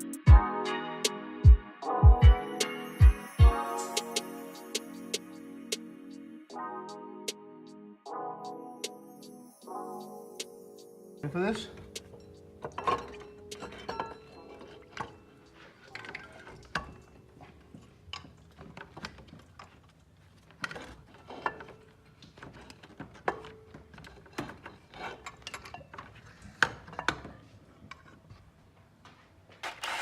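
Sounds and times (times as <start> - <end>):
metal tools clinking and knocking: 11.6 - 19.8, 20.5 - 28.2.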